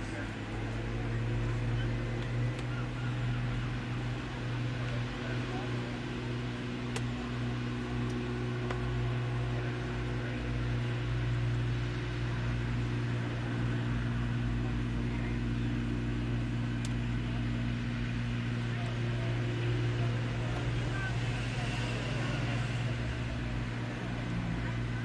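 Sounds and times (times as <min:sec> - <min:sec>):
boat engine drone: 0:00.0 - 0:25.0
faint clicks: 0:16.8 - 0:17.0.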